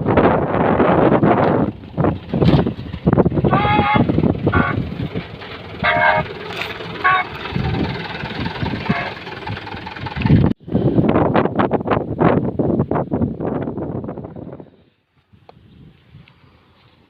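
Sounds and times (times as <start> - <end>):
truck engine running: 0.0 - 12.0
short high tones: 5.8 - 7.8.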